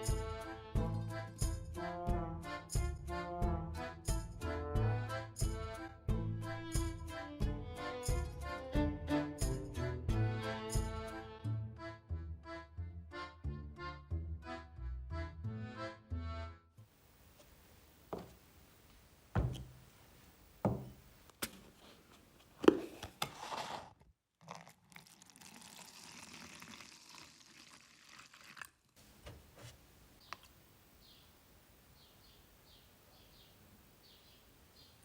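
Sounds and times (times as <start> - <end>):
knocks and thunks: 19.3 - 19.8, 20.6 - 21.0.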